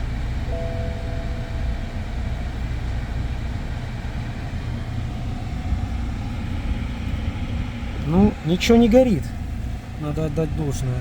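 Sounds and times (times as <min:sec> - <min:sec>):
car engine idling: 0:00.0 - 0:11.0
two-tone electronic chime: 0:00.5 - 0:02.4.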